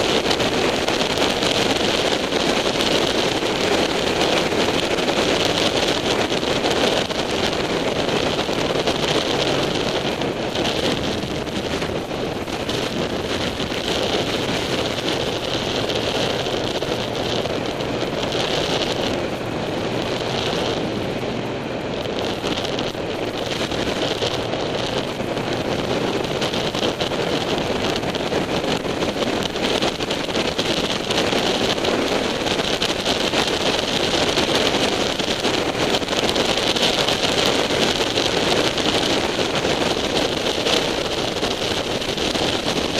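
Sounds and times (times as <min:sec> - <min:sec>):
motorcycle engine running: 0:00.0 - 0:42.9
wind rushing over microphone: 0:00.0 - 0:42.9.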